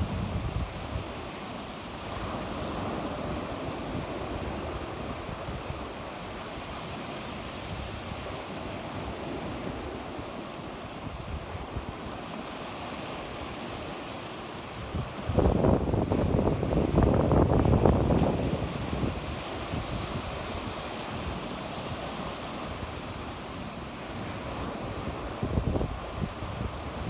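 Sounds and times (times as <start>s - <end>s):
wind rumble on microphone: 0.0s - 14.0s, 14.7s - 27.0s
sea waves washing onto shore: 0.0s - 27.0s.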